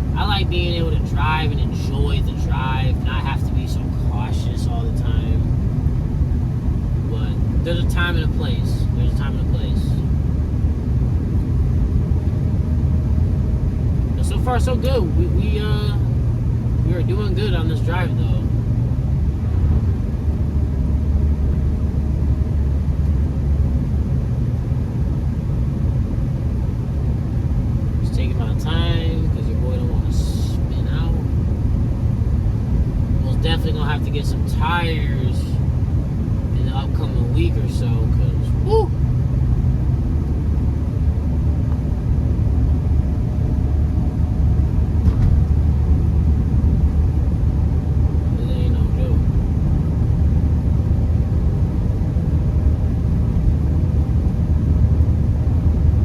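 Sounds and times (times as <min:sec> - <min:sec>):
car interior road drone: 0:00.0 - 0:56.0.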